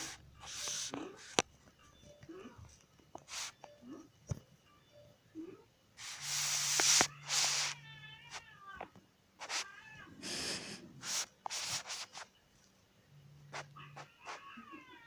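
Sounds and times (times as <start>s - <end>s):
cat meowing: 6.9s - 8.8s, 13.6s - 15.0s.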